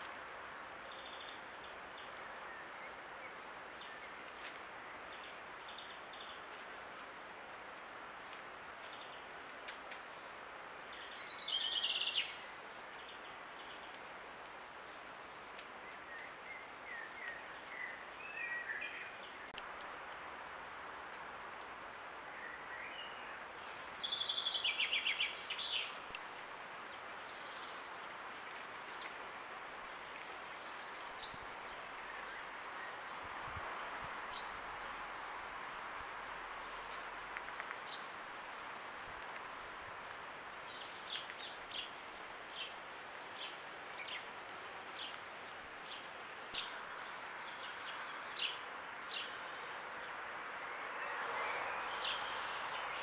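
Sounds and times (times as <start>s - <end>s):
steady background hiss: 0.0s - 53.0s
bird singing: 0.8s - 6.5s, 10.8s - 14.0s, 14.9s - 19.6s, 22.3s - 26.1s, 26.8s - 28.2s, 30.5s - 33.2s, 39.7s - 44.3s, 44.9s - 53.0s.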